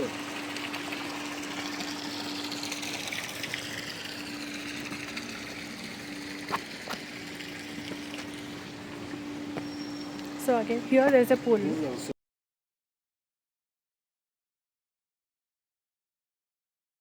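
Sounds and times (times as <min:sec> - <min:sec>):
steady hum: 0:00.0 - 0:12.1.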